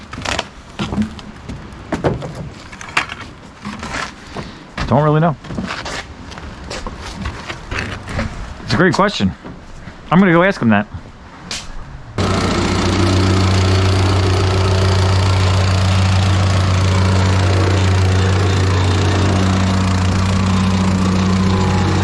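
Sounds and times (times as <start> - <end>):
small gasoline engine running: 12.2 - 22.0.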